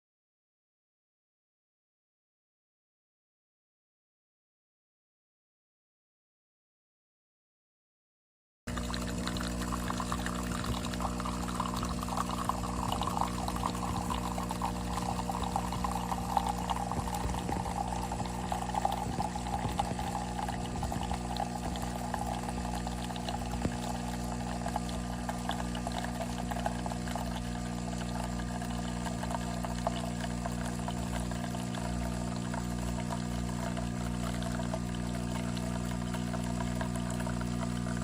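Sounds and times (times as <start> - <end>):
espresso machine pump hum: 8.7 - 38.0
liquid pouring into a cup: 8.7 - 38.0.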